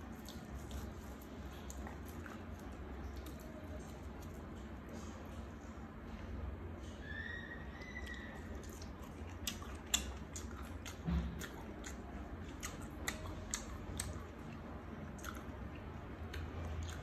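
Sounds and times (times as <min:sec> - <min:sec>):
person chewing wetly: 0:00.0 - 0:05.0, 0:08.0 - 0:17.0.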